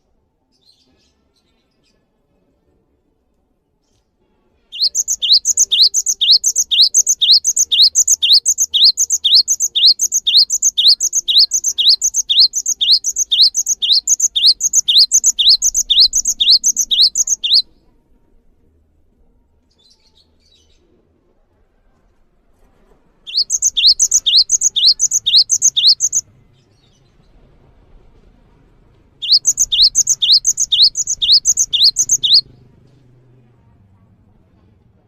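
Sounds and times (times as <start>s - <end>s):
bird chirping: 4.8s - 17.7s, 23.3s - 26.2s, 29.2s - 32.5s.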